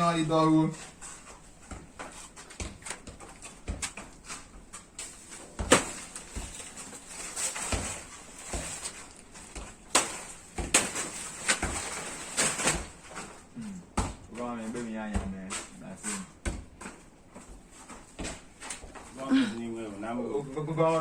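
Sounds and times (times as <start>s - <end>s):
machete chopping plant stem: 5.7s - 6.0s.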